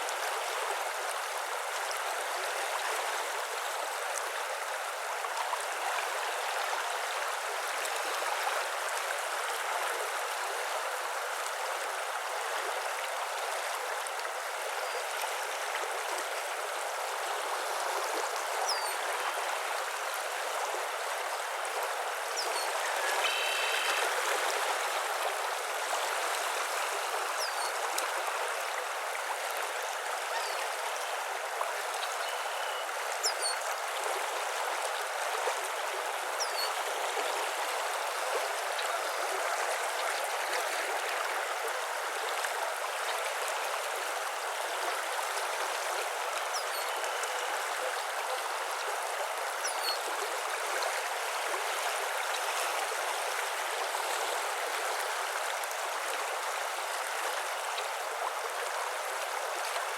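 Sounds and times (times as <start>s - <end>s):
flowing water: 0.0s - 59.9s
pitched bird call: 22.5s - 24.1s.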